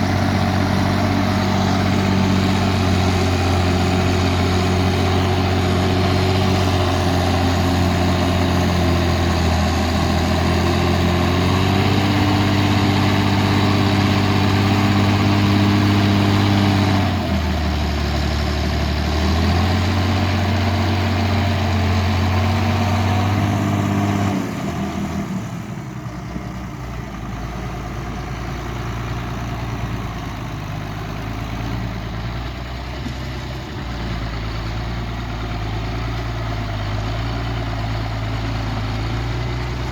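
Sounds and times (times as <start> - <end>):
tractor diesel engine working: 0.0 - 39.9.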